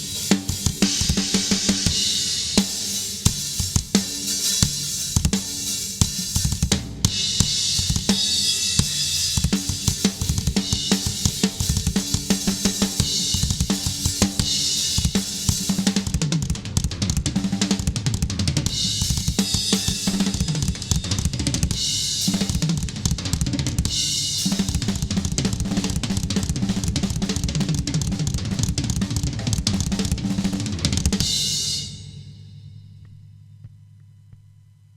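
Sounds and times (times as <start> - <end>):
drum kit playing: 0.0 - 33.8.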